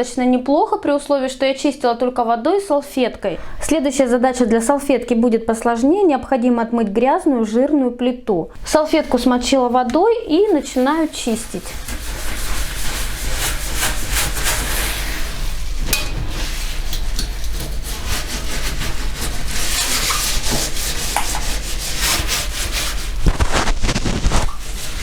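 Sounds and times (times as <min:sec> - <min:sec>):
cloth scrubbing a stovetop: 0:08.6 - 0:25.0.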